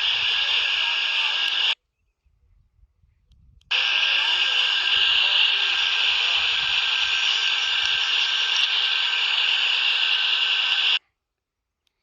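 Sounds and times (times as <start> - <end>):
radio static hissing: 0.0 - 1.8, 3.7 - 11.0.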